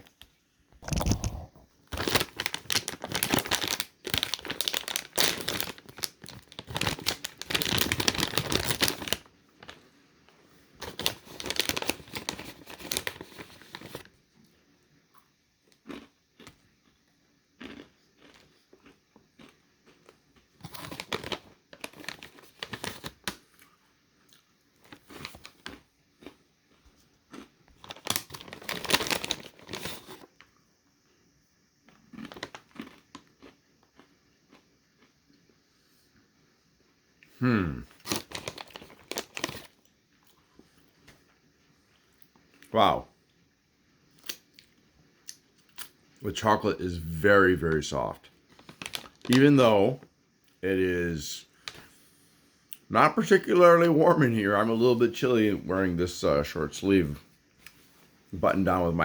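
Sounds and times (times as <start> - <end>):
food package crinkling: 0.8 - 9.9, 10.7 - 14.1, 17.6 - 23.5, 24.8 - 26.4, 27.0 - 30.5, 32.0 - 34.0, 37.9 - 41.2, 45.3 - 50.0.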